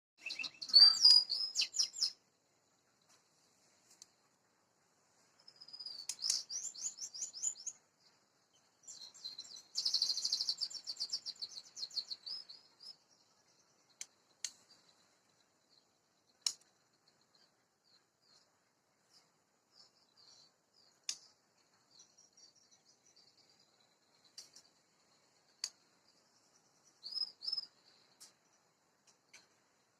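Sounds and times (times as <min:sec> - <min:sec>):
bird singing high repeated notes: 0:00.2 - 0:02.2, 0:05.6 - 0:07.8, 0:08.8 - 0:13.0.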